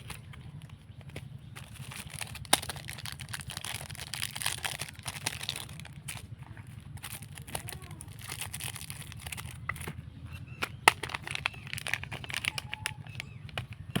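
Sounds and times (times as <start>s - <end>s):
packaging clicks and snaps: 0.0s - 14.0s
steady low hum: 0.0s - 14.0s
wrapper crinkling: 1.6s - 6.3s, 7.0s - 9.9s, 10.8s - 14.0s.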